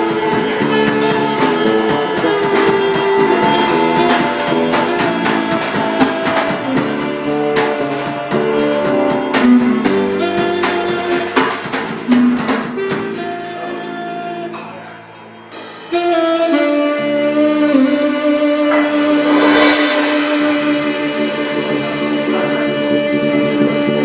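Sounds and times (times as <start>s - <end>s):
live jazz band playing: 0.0s - 24.0s.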